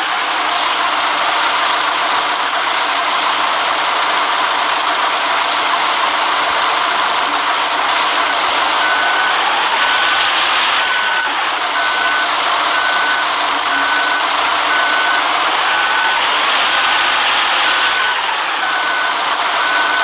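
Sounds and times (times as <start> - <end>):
bus running on wet road: 0.0 - 20.0
electronic beep: 8.5 - 20.0.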